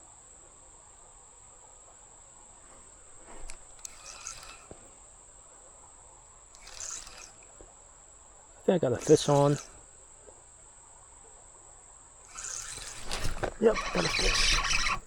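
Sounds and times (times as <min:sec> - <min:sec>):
insects droning: 0:00.0 - 0:15.0
gear being handled: 0:03.1 - 0:04.8, 0:06.6 - 0:07.4, 0:12.3 - 0:15.0.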